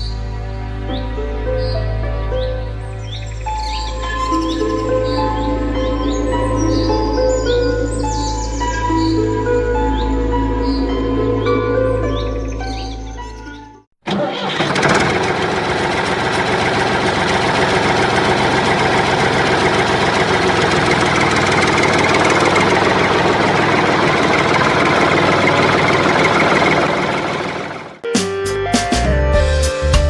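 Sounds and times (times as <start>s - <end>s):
engine running steadily: 14.1s - 28.0s.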